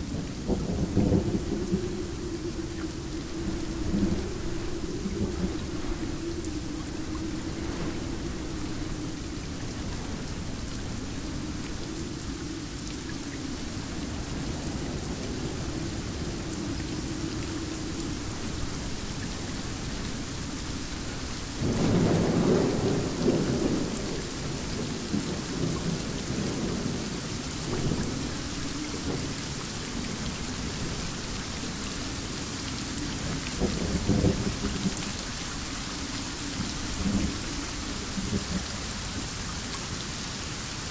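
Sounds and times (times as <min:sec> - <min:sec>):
heavy rain falling: 0:00.0 - 0:40.9
thunder cracking and rumbling: 0:00.1 - 0:17.2, 0:17.8 - 0:31.1.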